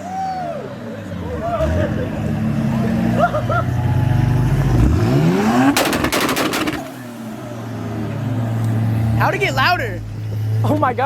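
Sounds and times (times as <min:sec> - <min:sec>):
car engine revving: 0:01.4 - 0:11.0
exhaust pops and cracks: 0:05.6 - 0:07.3.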